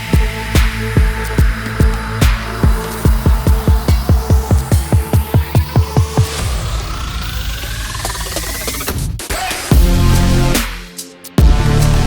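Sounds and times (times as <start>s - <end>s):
fast kick drum beat: 0.0s - 6.4s, 9.7s - 11.7s.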